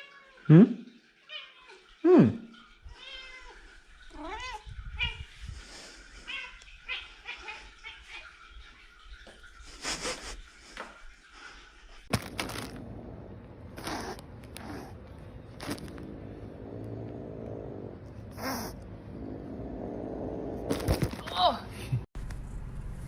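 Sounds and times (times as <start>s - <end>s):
rustling: 12.0s - 17.0s, 20.6s - 21.6s.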